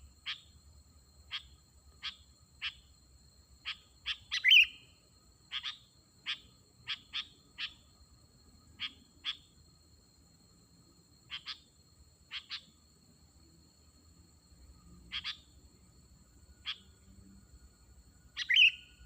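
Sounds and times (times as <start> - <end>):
warbled bird call: 3.6 - 4.9, 5.5 - 7.8, 8.8 - 9.5, 11.3 - 11.6, 12.3 - 12.7, 15.1 - 15.4, 16.6 - 16.8, 18.4 - 19.0.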